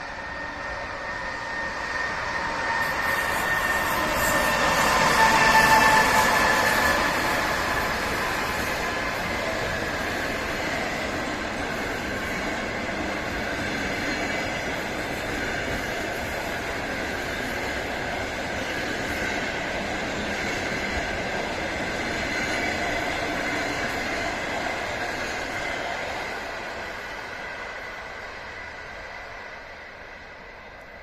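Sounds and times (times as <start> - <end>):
faint high squeal: 0.0 - 8.8
train wheels on track: 0.0 - 31.0.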